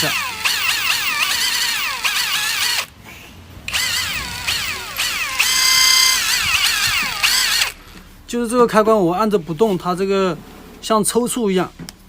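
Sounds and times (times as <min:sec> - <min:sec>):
electric impact wrench motor whining: 0:00.0 - 0:02.9, 0:03.7 - 0:07.8.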